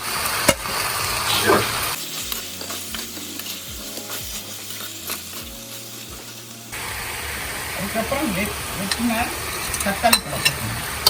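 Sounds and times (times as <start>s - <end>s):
food frying in oil: 0.0s - 11.0s
spoon scraping a pot: 2.0s - 6.8s.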